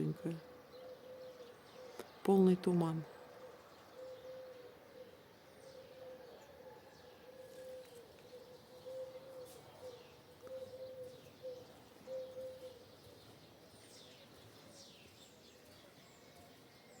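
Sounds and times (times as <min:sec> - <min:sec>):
dove cooing: 0:00.0 - 0:02.2, 0:03.0 - 0:14.8
small birds chirping: 0:00.0 - 0:17.0.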